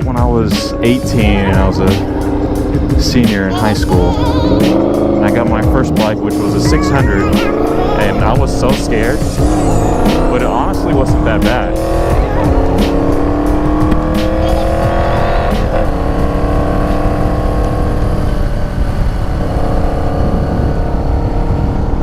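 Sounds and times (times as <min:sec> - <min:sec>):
motorcycle engine accelerating: 0:00.8 - 0:22.0
wind rumble on microphone: 0:10.7 - 0:22.0.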